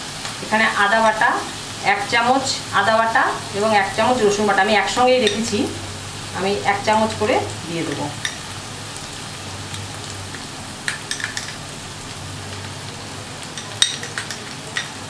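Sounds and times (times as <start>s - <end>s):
metal spoon clicks: 13.6s - 15.0s.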